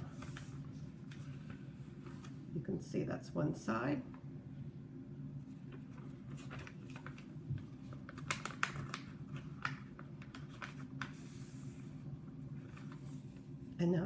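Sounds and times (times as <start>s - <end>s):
paper being folded and creased: 0.0s - 2.5s, 5.6s - 13.5s
steady low hum: 0.0s - 14.0s.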